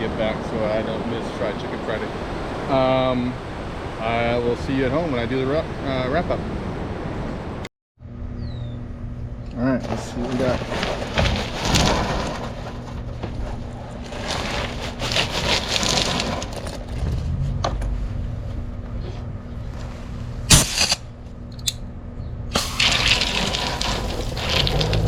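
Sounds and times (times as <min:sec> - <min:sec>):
water sloshing and splashing: 0:22.6 - 0:25.0.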